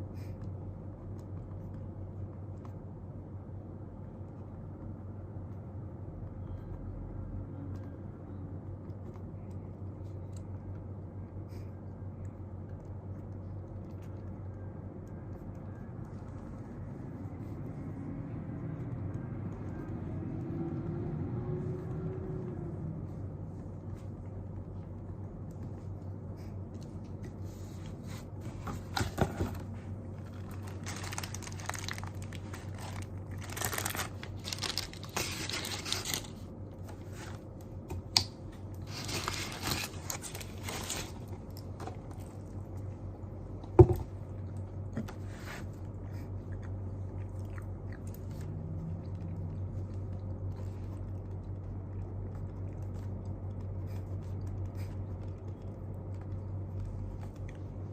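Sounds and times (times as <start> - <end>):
steady low hum: 0.0 - 57.9
paper rustling and scraping: 27.5 - 37.4, 38.8 - 41.4.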